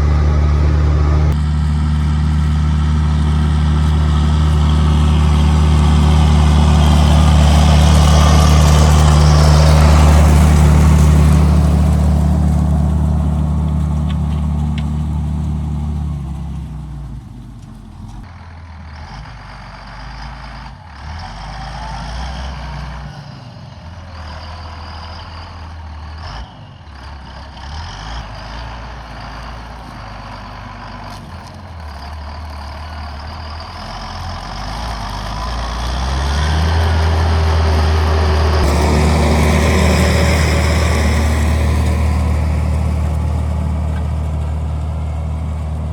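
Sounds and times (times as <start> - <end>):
rushing noise: 0.0 - 14.0, 36.4 - 45.9
tractor diesel engine pulling: 0.0 - 45.9.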